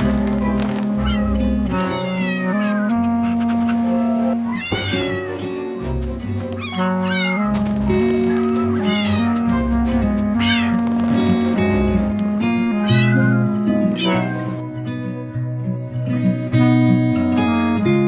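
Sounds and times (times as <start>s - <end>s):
light background music: 0.0s - 18.0s
cartoon kitten meowing: 2.0s - 3.0s, 4.4s - 5.5s, 6.6s - 7.5s, 8.6s - 9.7s, 10.4s - 10.8s, 12.8s - 14.6s.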